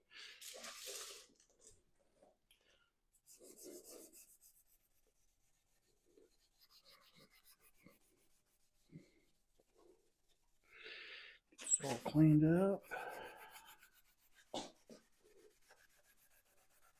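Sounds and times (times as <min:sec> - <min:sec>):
cleaning pad scrubbing metal: 0:11.7 - 0:16.9.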